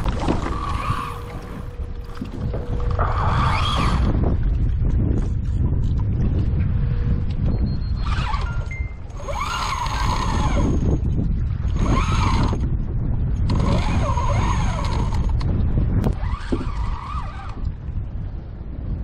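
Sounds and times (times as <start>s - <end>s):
wind noise on microphone: 0.0s - 19.0s
fishing reel whining: 0.3s - 4.2s, 7.7s - 12.7s, 13.4s - 17.7s.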